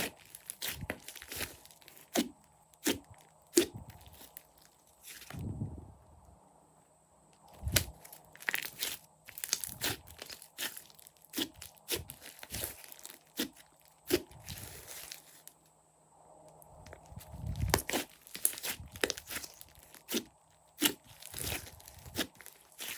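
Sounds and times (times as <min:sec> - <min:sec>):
hands squishing slime: 0:00.0 - 0:04.6, 0:07.6 - 0:15.2, 0:17.6 - 0:22.9.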